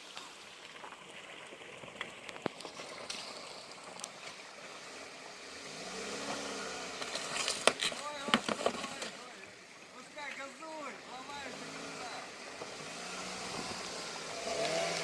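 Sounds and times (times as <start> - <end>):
car engine revving: 4.8 - 9.4, 11.0 - 15.0.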